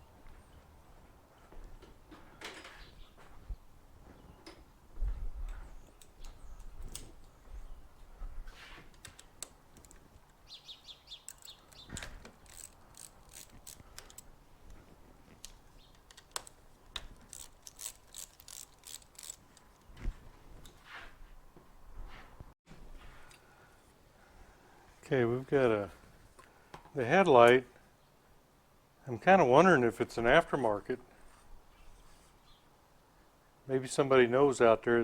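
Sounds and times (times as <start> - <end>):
tools and metal parts clinking: 11.2 - 14.8, 15.4 - 20.0
ratchet wrench clicking: 11.3 - 14.2, 15.4 - 19.8.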